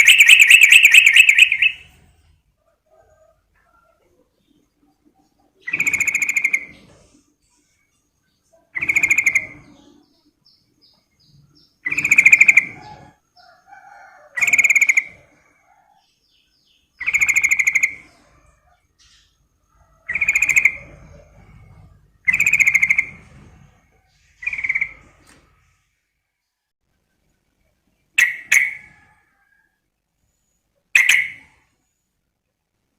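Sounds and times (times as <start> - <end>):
bulbul singing bubbling phrase: 0.0 - 1.8
faint bird chirps: 0.0 - 25.9.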